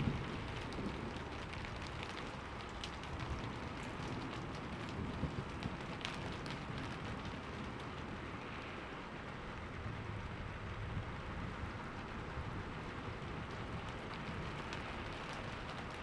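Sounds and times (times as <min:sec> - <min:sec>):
low rumble of thunder: 0:00.0 - 0:08.3
steady rain falling: 0:00.0 - 0:16.0.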